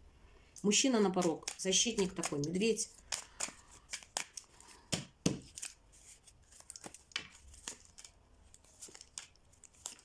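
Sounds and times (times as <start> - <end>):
cards flicking and clicking: 1.1 - 5.8.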